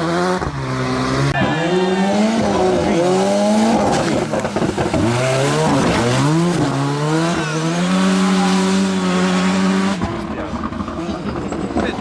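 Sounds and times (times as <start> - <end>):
rally car engine accelerating hard: 0.0 - 12.0.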